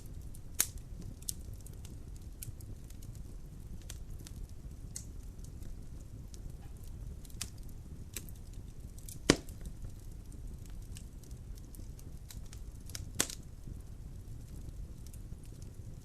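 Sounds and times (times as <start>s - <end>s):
fire crackling: 0.0s - 16.0s
fire rumbling: 0.0s - 16.0s
loud log pop: 9.3s - 9.5s.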